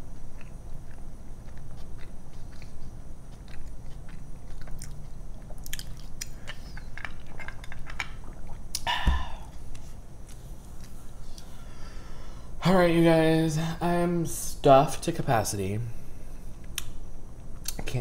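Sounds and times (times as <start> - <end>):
chewing: 0.0 - 8.9.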